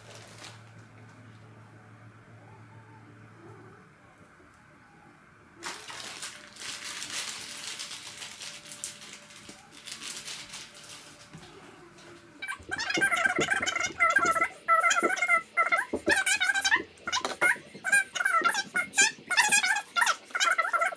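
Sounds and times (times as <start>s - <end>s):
shower cap rustling and crinkling: 0.0s - 0.8s, 5.6s - 11.6s.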